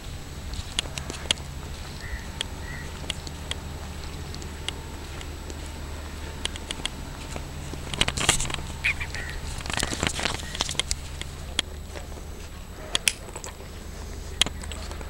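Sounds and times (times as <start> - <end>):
birds chirping: 0.0 - 15.0
steady low hum: 0.0 - 15.0
light clicks: 0.5 - 12.2
harsh raspy bird calls: 1.8 - 4.8, 7.8 - 12.4.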